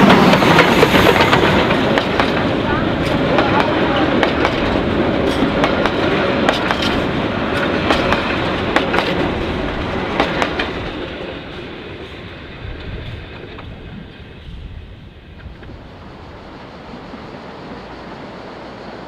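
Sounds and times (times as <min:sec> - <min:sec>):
wheels clicking over rail joints: 0:00.0 - 0:14.3
train coaches rumbling past: 0:00.0 - 0:19.0.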